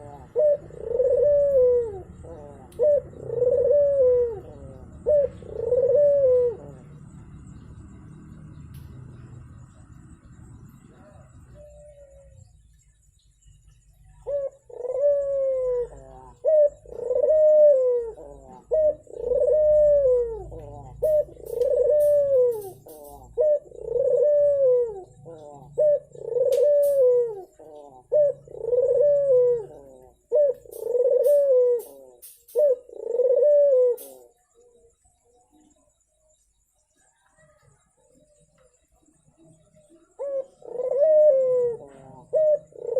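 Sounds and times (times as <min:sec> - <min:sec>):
dove cooing: 0:00.0 - 0:12.8, 0:14.0 - 0:42.9.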